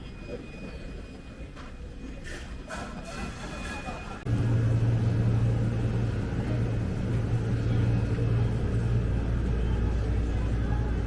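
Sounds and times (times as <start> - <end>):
motor humming: 4.3 - 11.0.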